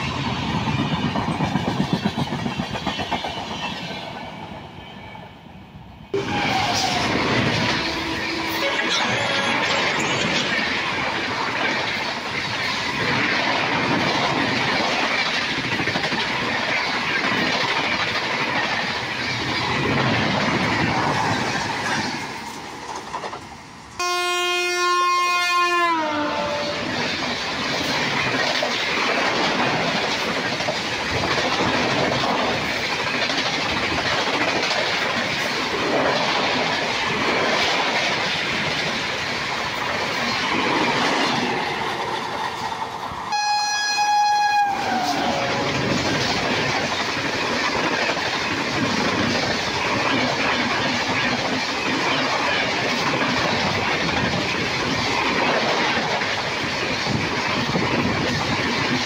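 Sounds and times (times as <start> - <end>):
train coaches rushing past: 0.0 - 25.4, 26.0 - 59.0
train horn: 6.2 - 9.8, 24.0 - 26.8, 43.3 - 45.8.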